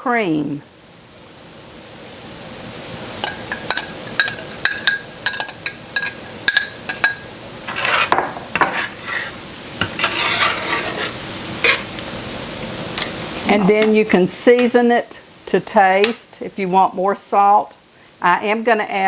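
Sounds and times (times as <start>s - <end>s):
faint sizzle: 0.0s - 19.0s
spoon clinking against pan: 3.2s - 7.2s
spoon scraping pan: 3.2s - 12.1s.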